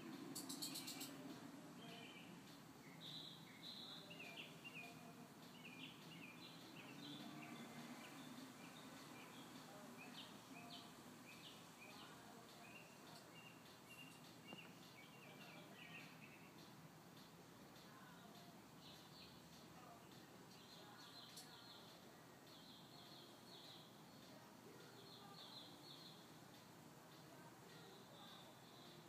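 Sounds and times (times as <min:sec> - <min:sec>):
faint small bird chirps: 0:00.3 - 0:01.2, 0:02.9 - 0:16.6.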